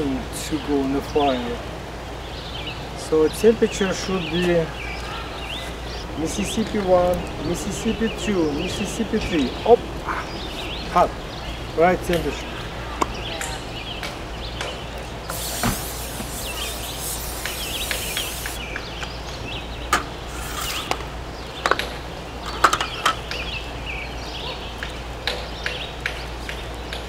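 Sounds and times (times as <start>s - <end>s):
small birds chirping: 2.1s - 27.0s
steady hiss: 15.2s - 18.9s, 20.2s - 21.3s.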